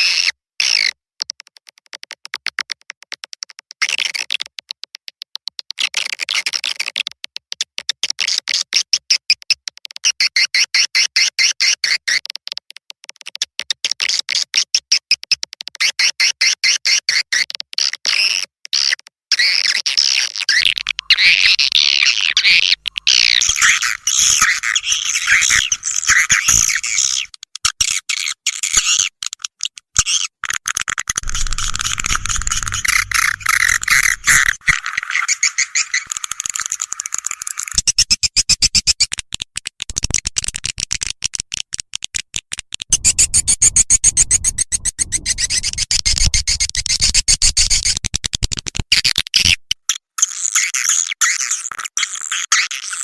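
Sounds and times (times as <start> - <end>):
rapid clicking: 20.6 - 27.3, 31.1 - 35.0
swiftlets twittering: 20.6 - 27.3, 31.2 - 36.5
low pulsing sound: 31.2 - 34.8.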